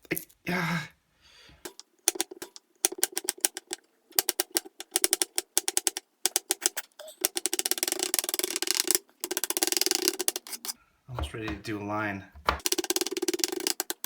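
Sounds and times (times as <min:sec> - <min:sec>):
knife chopping on cutting board: 0:11.2 - 0:11.8, 0:12.4 - 0:12.7.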